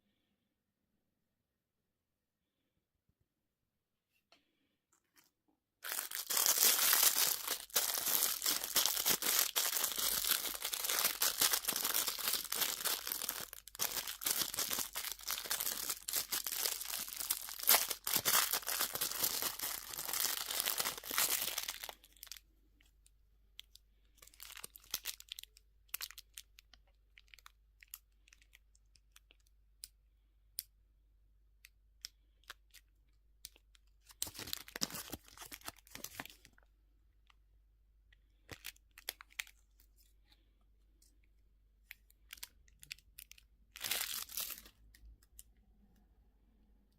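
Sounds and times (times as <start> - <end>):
candy wrapper crinkling: 5.8 - 22.9, 23.6 - 30.0, 31.6 - 36.7, 38.1 - 40.2, 41.1 - 45.5.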